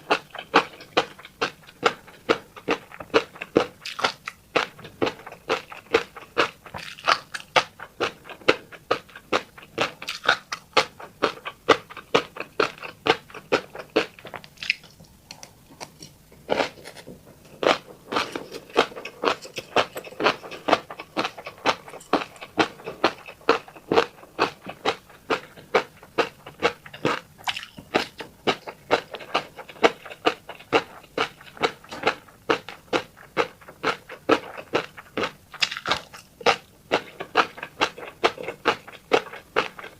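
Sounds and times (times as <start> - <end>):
wet popping while chewing: 13.5 - 16.1, 27.0 - 28.3.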